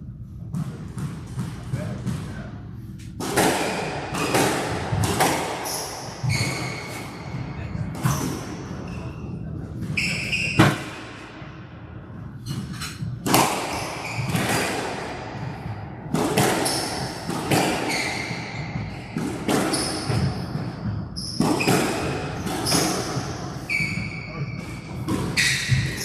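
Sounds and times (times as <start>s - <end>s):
squash ball cracking off racquets: 3.1s - 7.4s, 12.5s - 24.1s
shoes squeaking on court floor: 5.2s - 10.9s, 12.4s - 14.7s, 16.6s - 26.0s.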